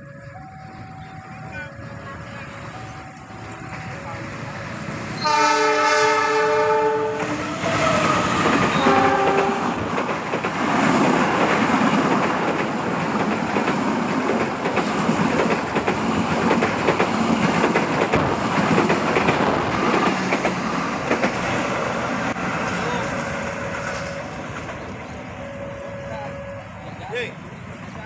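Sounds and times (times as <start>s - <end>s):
train horn: 5.2s - 9.8s, 23.3s - 24.6s, 25.4s - 27.0s
train wheels clattering on rails: 7.1s - 25.3s.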